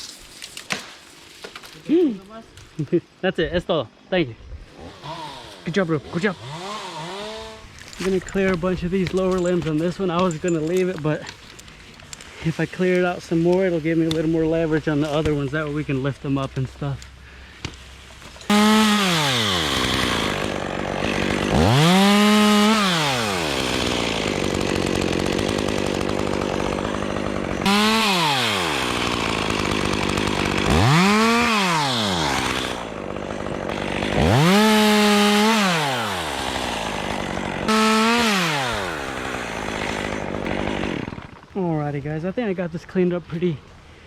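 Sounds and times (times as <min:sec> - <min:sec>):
chainsaw revving and idling: 0:04.6 - 0:11.4, 0:17.6 - 0:41.8.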